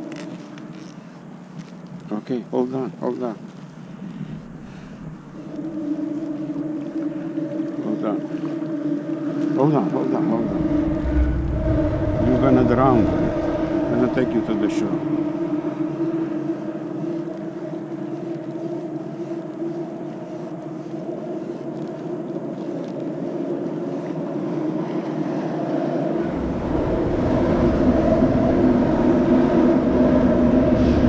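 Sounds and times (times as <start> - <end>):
deep rumble: 4.2 - 7.4, 10.1 - 16.8, 26.1 - 31.0
boat motor humming: 4.2 - 17.8, 25.9 - 31.0.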